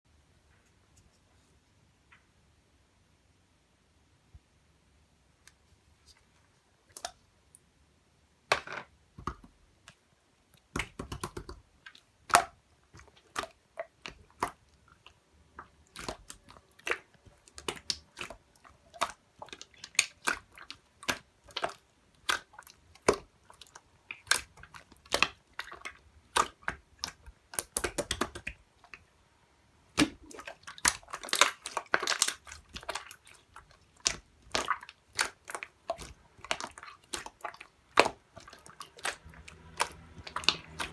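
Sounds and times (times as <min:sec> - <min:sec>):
slime clicking and popping: 0:10.6 - 0:12.6, 0:13.2 - 0:29.1, 0:29.9 - 0:40.9.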